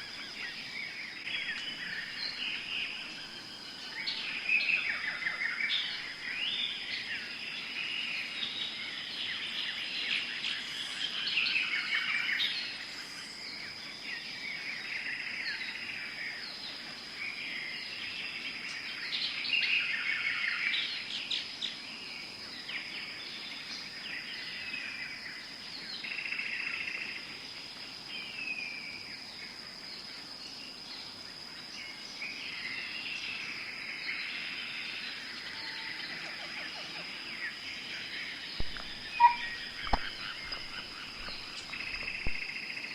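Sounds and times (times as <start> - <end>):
birds chirping and calling: 0.0 - 7.3, 34.2 - 42.9
high-pitched insect drone: 32.1 - 42.9.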